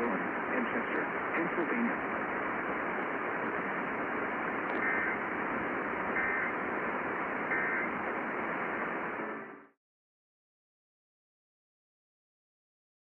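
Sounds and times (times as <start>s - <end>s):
radio static hiss: 0.0s - 9.7s
warbling data bursts: 4.8s - 5.3s, 5.9s - 6.7s, 7.4s - 8.0s.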